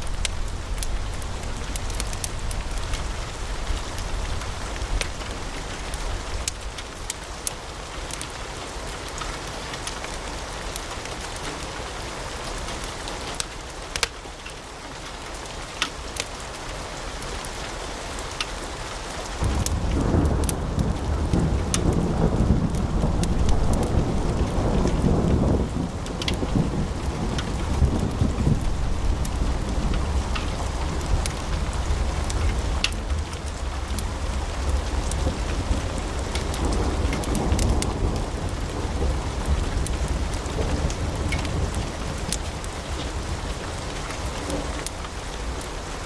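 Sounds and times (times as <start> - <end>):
low rumble: 0.0 - 6.7
wood fire crackling: 0.0 - 17.6, 19.2 - 46.0.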